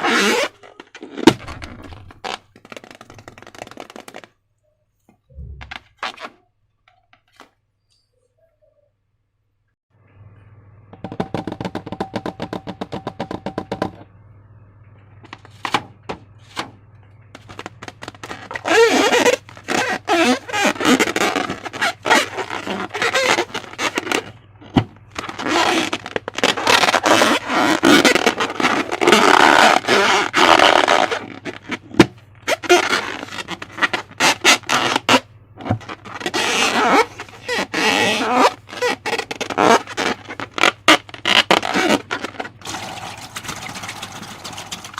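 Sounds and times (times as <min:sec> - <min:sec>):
low steady hum: 0:07.9 - 0:18.6.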